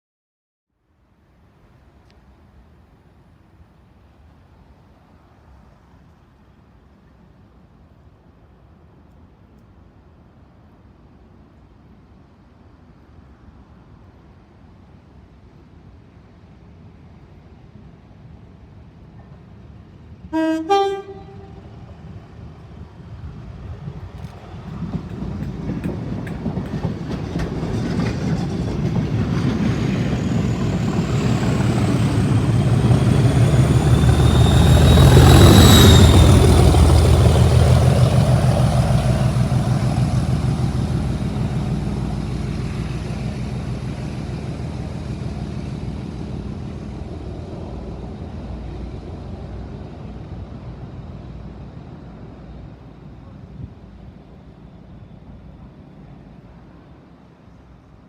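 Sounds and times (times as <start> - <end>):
diesel locomotive engine passing: 15.4 - 58.0
turbocharger whistle: 32.3 - 36.7.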